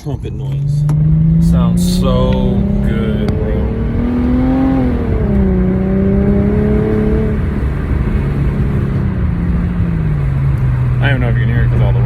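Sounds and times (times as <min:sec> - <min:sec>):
car engine and exhaust: 0:00.0 - 0:12.0.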